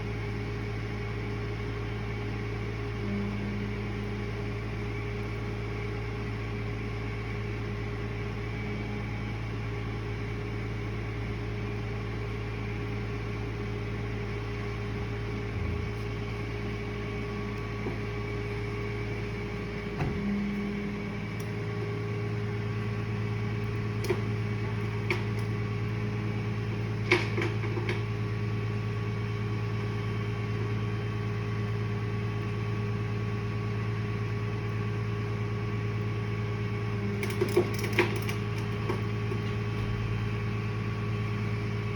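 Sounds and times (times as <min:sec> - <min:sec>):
motor humming: 0:02.8 - 0:29.1.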